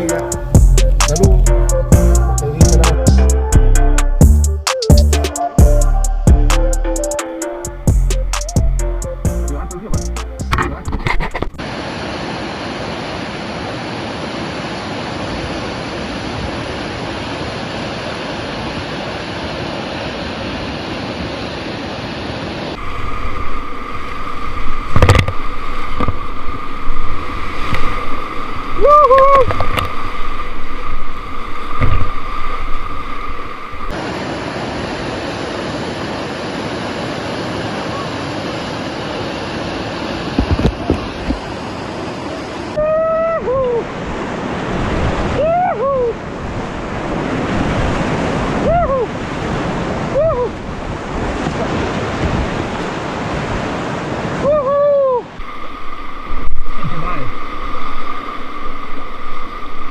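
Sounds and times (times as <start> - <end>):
river water rushing: 0.0 - 1.2, 10.5 - 59.9
short wavering call: 0.0 - 10.4, 28.7 - 29.6
steady high hum: 22.1 - 29.1.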